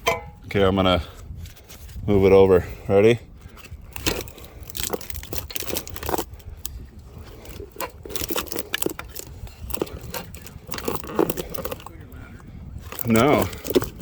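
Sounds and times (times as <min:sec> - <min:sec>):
wooden box knocking and scraping: 0:03.9 - 0:06.4, 0:07.2 - 0:12.0, 0:12.8 - 0:14.0.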